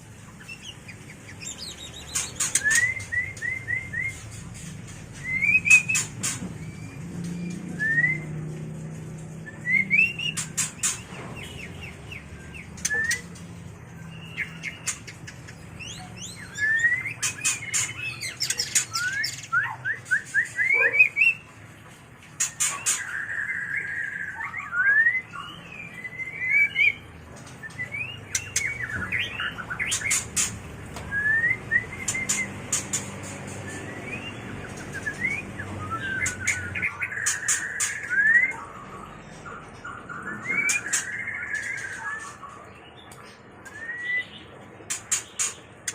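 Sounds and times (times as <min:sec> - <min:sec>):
bird singing whistled phrases: 0:01.4 - 0:04.2, 0:05.2 - 0:06.1, 0:06.7 - 0:08.4, 0:09.4 - 0:10.4, 0:11.5 - 0:13.4, 0:15.8 - 0:21.4, 0:22.6 - 0:30.1, 0:31.0 - 0:32.6, 0:33.6 - 0:38.8, 0:39.8 - 0:42.6, 0:43.7 - 0:44.4.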